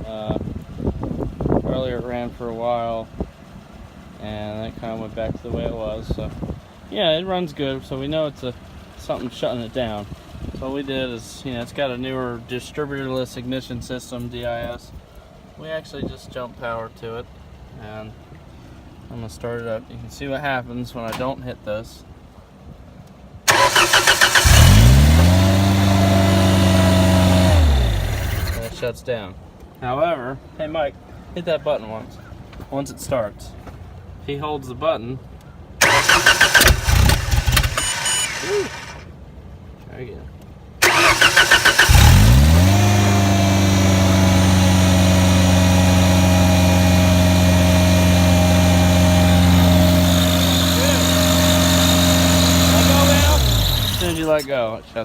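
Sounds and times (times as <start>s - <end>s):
engine fast idle: 23.5s - 28.9s, 35.8s - 39.1s, 40.8s - 54.4s
engine starter cranking: 23.5s - 28.9s, 35.8s - 39.1s, 40.8s - 45.4s, 48.1s - 54.5s.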